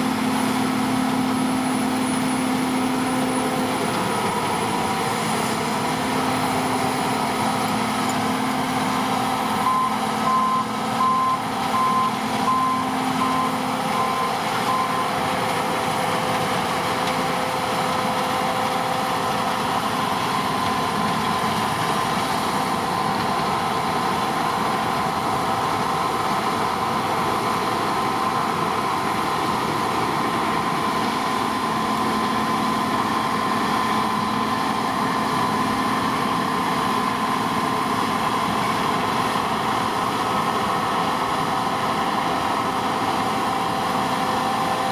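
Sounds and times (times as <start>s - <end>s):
combine harvester running: 0.0s - 44.9s
reversing alarm beeping: 7.7s - 15.3s.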